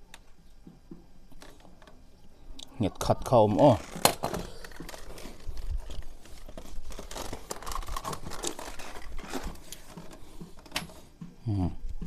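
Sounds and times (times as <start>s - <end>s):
hands scraping and rustling on parts: 3.6s - 11.4s.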